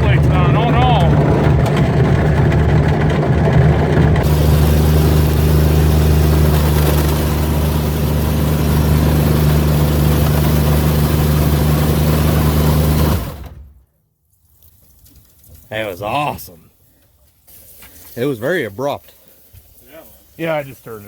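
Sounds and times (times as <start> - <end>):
car engine running: 0.0 - 13.7.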